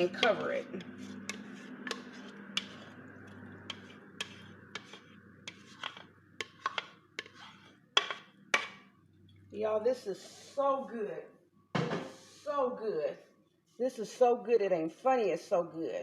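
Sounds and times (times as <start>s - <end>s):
utensil tapping and scraping dish: 0.0s - 8.9s.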